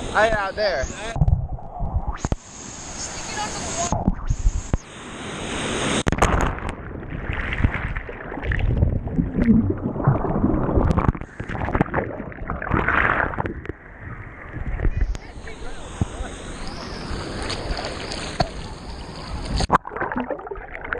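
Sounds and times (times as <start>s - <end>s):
seawater sloshing and gurgling: 6.2s - 20.9s.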